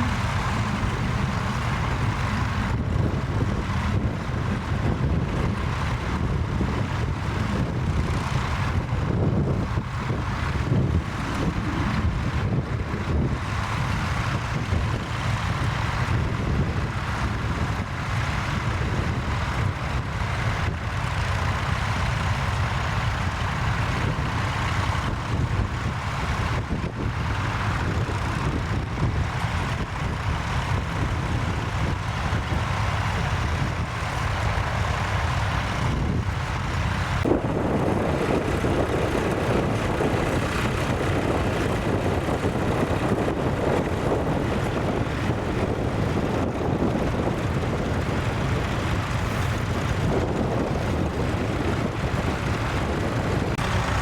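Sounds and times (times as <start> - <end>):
louder mid-pitched noise: 0.0 - 3.0
tractor engine running: 0.0 - 54.0.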